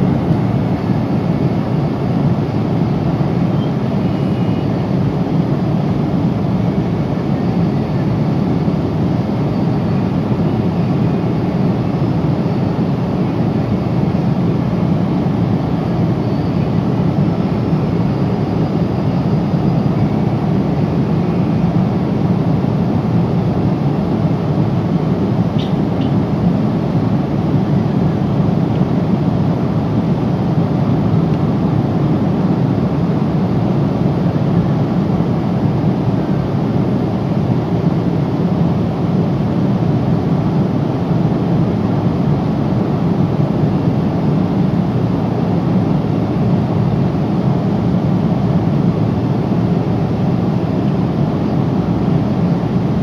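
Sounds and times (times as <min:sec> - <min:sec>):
airliner cabin noise: 0:00.0 - 0:53.0.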